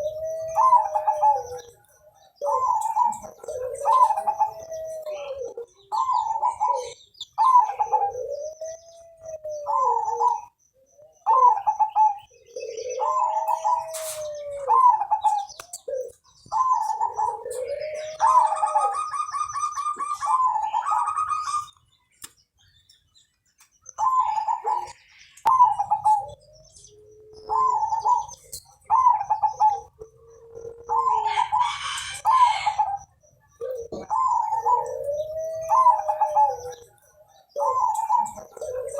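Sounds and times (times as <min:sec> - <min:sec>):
dove cooing: 0:00.0 - 0:21.8, 0:23.9 - 0:38.9
rapid bird trill: 0:00.0 - 0:23.2.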